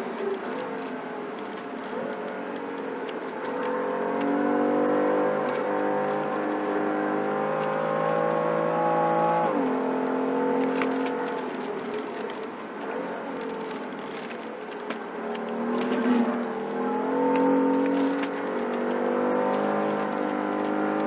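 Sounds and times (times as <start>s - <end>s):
car engine at full throttle: 0.0s - 21.0s.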